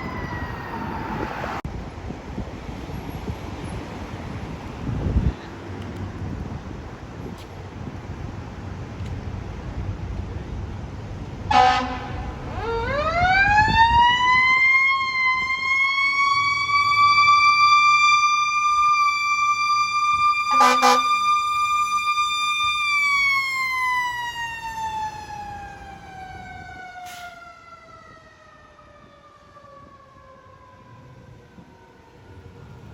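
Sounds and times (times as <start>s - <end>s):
mechanical siren wailing: 0.0s - 1.6s, 11.5s - 32.9s
truck engine rumbling: 0.0s - 24.1s
short horn blasts: 11.5s - 12.3s, 20.5s - 21.2s.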